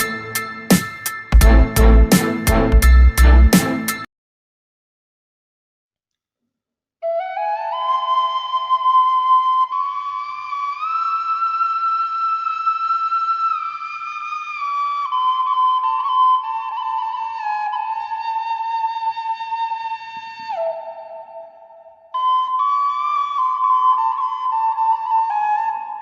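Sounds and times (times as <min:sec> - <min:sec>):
bamboo flute melody: 0:00.0 - 0:04.0, 0:07.0 - 0:26.0.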